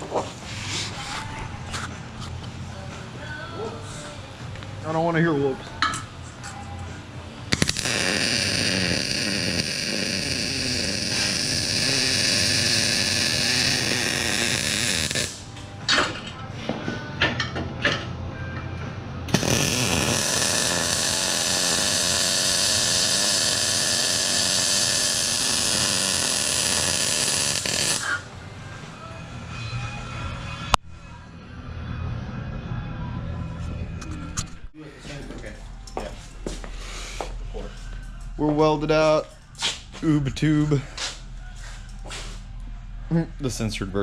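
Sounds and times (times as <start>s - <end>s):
welding arc crackling: 7.5s - 15.5s, 19.3s - 28.2s.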